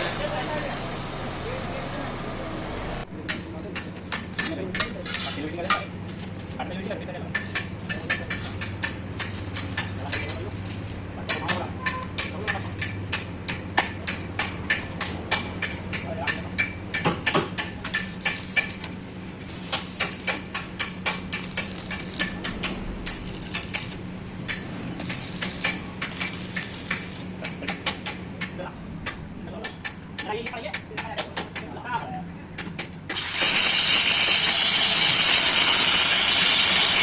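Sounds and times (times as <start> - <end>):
hammer striking steel: 3.2 - 5.8, 7.3 - 31.7.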